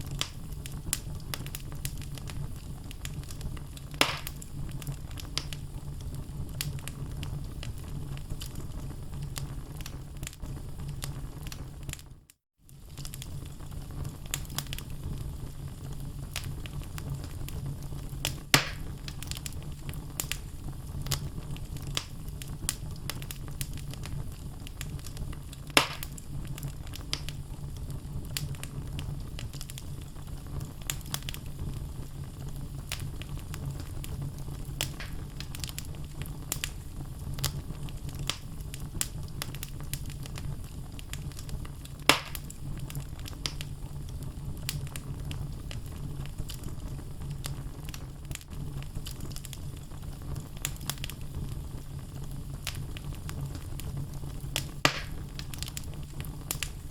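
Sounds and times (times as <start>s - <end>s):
sharp pops of fire: 0.0s - 12.0s, 12.8s - 56.9s
low rumble of flames: 0.0s - 56.9s
logs crackling: 0.1s - 5.6s, 18.2s - 19.6s, 24.7s - 27.4s, 32.9s - 36.8s, 37.4s - 43.6s, 54.6s - 56.9s.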